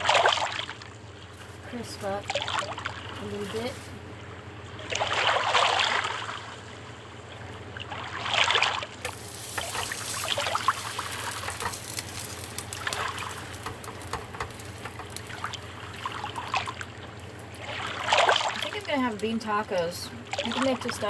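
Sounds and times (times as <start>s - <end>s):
tortillas sizzling in oil: 9.0s - 21.0s.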